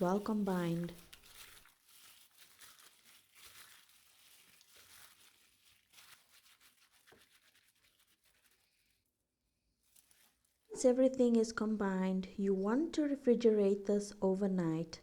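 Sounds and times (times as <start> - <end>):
wet squishing of raw chicken: 0.1 - 8.7.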